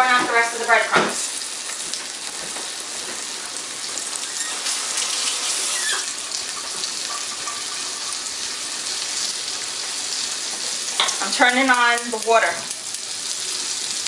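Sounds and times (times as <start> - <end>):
meat sizzling in a pan: 0.0 - 14.0
water running from a tap: 3.6 - 14.0.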